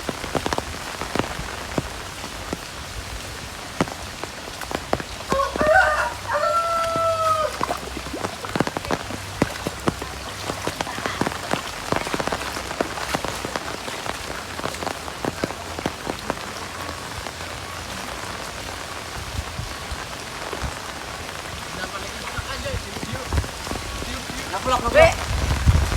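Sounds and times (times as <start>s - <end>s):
heavy rain: 0.0s - 25.9s
raindrops ticking on surfaces: 0.0s - 25.9s
rooster crowing: 5.3s - 7.7s.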